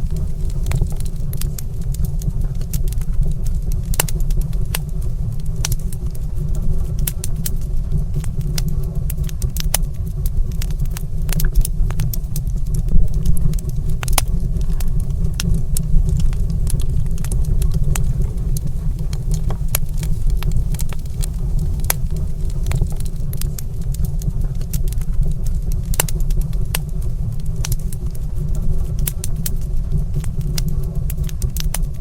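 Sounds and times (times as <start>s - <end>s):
wood fire crackling and popping: 0.0s - 5.0s, 6.8s - 27.0s
low steady rumble: 0.0s - 32.0s.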